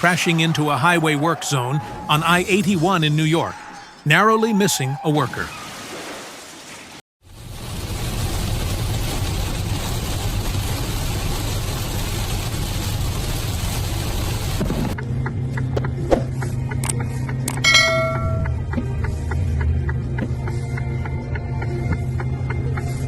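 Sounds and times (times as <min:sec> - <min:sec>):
brief ringing tone: 0:17.6 - 0:18.6
low steady hum: 0:17.6 - 0:18.7.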